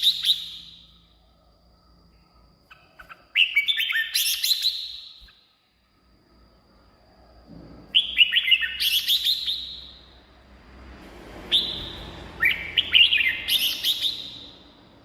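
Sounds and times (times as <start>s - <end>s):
bulbul singing: 0.0s - 1.3s, 2.2s - 5.5s, 7.9s - 10.3s, 11.4s - 15.0s.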